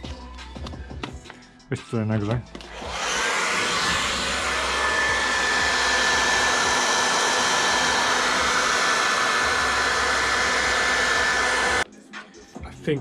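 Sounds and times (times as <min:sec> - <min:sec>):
hot-air blower running: 0:02.7 - 0:11.8.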